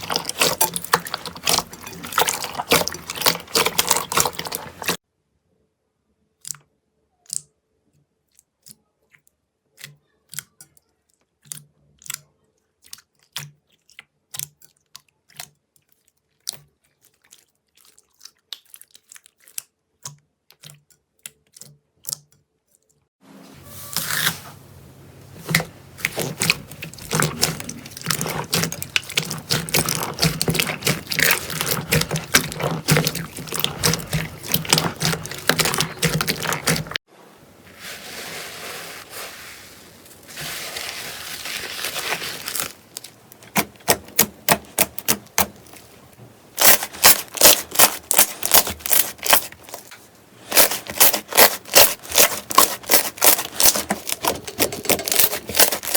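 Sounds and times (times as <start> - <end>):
slime rubbing: 0.0 - 5.0, 23.6 - 55.9.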